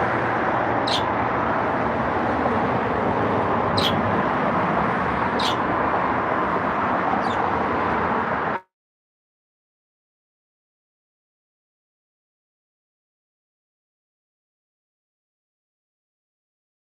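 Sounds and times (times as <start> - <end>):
birds chirping: 0.0 - 7.9
steady rushing noise: 0.0 - 8.6.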